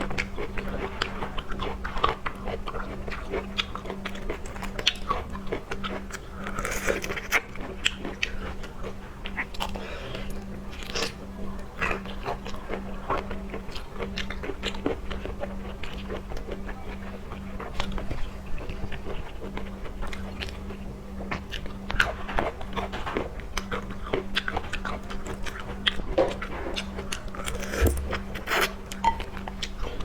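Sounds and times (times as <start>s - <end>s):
person chewing seafood: 23.6s - 30.0s
steady low hum: 24.0s - 30.0s.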